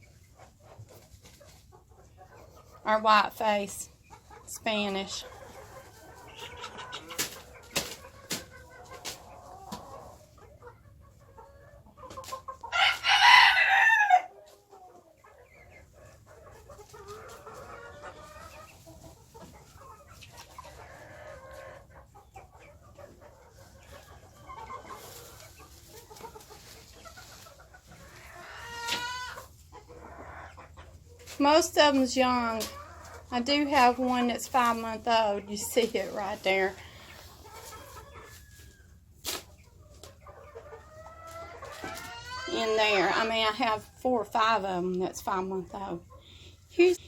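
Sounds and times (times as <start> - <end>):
chickens clucking softly: 0.0 - 47.0
loud harsh chicken call: 12.7 - 14.3.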